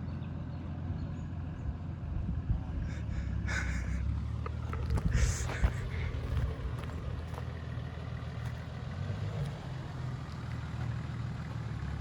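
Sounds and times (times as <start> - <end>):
off-road vehicle engine rumble: 0.0 - 12.0.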